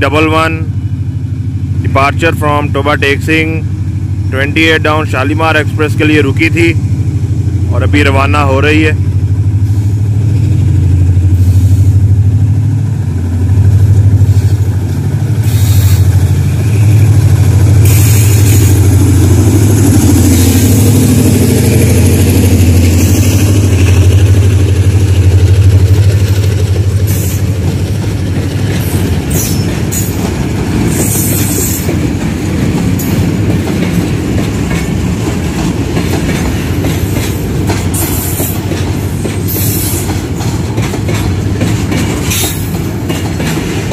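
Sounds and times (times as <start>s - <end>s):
diesel locomotive engine drone: 0.0s - 43.9s
wheels clattering over rail joints: 23.8s - 43.9s.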